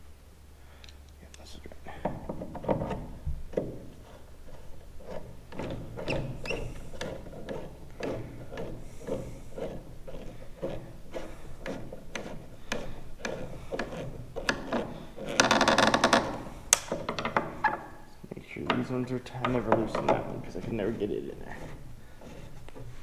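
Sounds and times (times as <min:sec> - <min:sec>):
hand ratchet clicking: 0:05.1 - 0:18.0.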